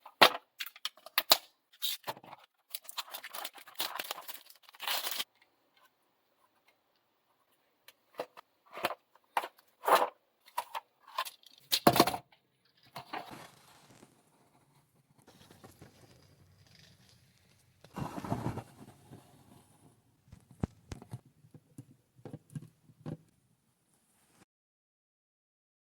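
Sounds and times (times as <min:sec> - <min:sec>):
plastic packaging crinkling and tearing: 0:00.6 - 0:05.3.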